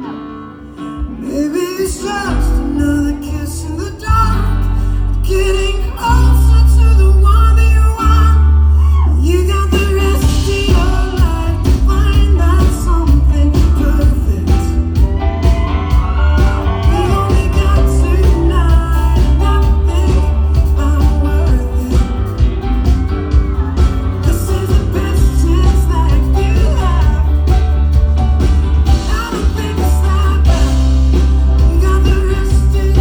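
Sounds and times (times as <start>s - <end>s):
drums and cymbal wash: 9.7s - 33.0s
held bass note: 30.2s - 33.0s.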